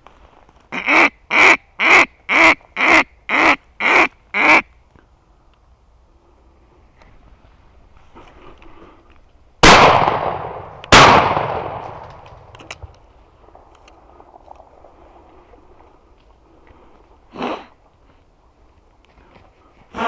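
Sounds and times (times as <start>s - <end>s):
shotgun shots echoing: 9.6s - 12.5s.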